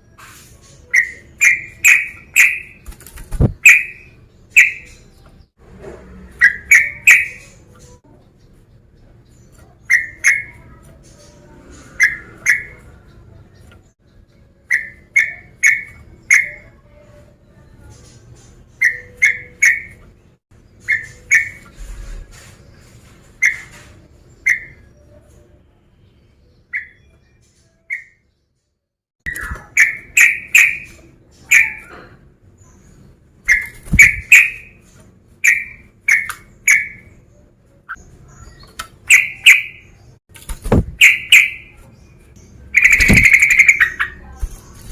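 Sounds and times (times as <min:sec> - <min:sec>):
bulbul whistled calls: 0:33.5 - 0:34.8, 0:37.9 - 0:40.0, 0:41.0 - 0:41.8, 0:42.8 - 0:44.2.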